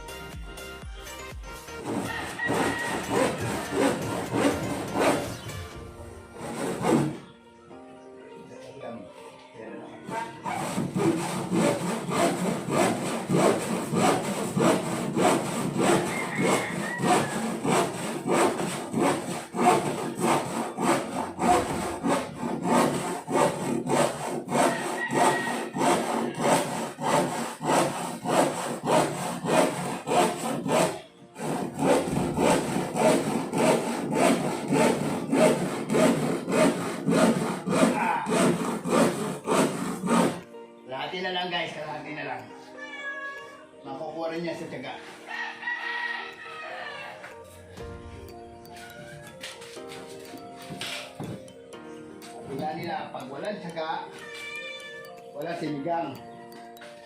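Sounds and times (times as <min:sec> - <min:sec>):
handsaw cutting wood: 0:01.7 - 0:07.3, 0:10.0 - 0:40.5.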